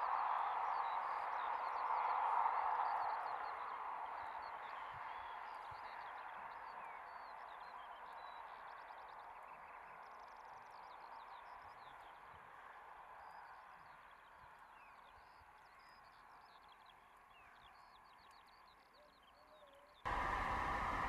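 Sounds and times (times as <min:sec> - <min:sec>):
loud rushing noise: 0:20.1 - 0:21.0.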